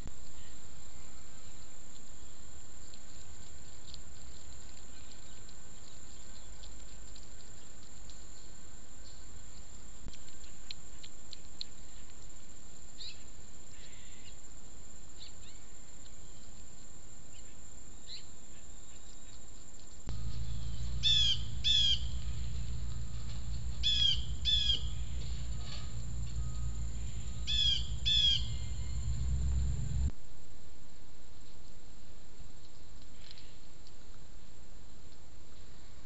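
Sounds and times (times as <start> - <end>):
faint scattered chirps: 20.1 - 30.1
low steady rumble: 20.1 - 30.2
bird calling in quick pairs: 20.2 - 30.1.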